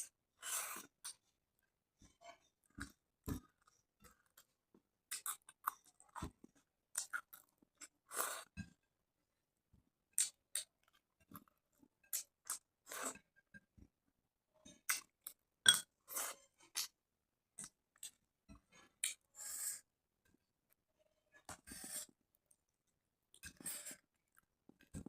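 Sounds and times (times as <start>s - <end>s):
mouth chewing food: 5.1s - 8.5s.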